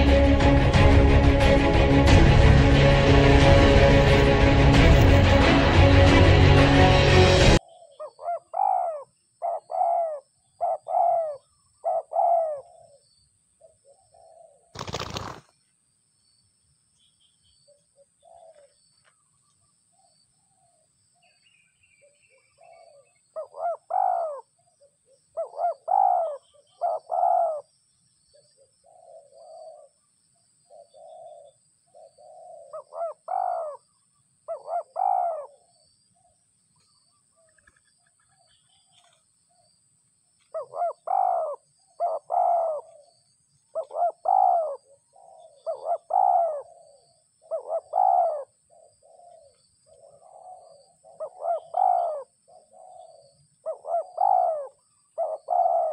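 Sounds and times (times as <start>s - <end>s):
doves cooing: 7.7s - 13.0s, 14.0s - 15.4s, 18.2s - 18.8s, 22.4s - 24.4s, 25.4s - 27.7s, 28.8s - 29.9s, 30.7s - 33.8s, 34.5s - 35.6s, 40.5s - 43.1s, 43.7s - 55.9s.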